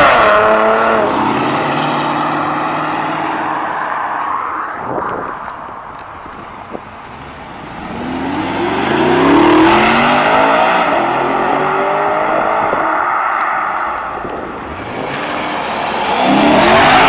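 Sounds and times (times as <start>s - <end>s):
car engine accelerating: 7.1s - 17.0s.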